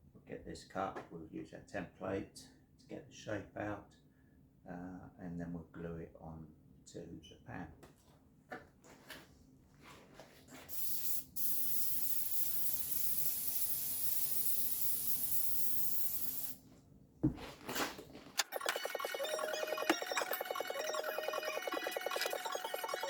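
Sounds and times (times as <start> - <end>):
aerosol can hissing: 10.7 - 16.6.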